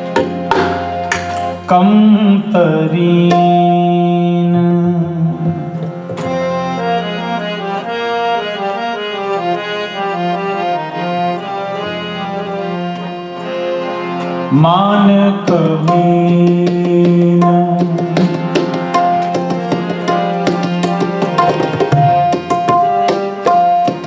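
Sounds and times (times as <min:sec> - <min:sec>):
tabla drumming: 0:00.0 - 0:02.0, 0:03.2 - 0:04.0, 0:15.4 - 0:24.0
harmonium: 0:00.0 - 0:24.0
person singing: 0:01.6 - 0:05.9, 0:14.5 - 0:18.4.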